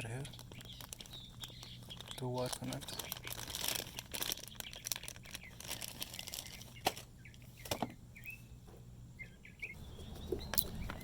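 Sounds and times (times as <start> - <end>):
small birds chirping: 0.0 - 11.0
packaging rustling: 0.3 - 7.1.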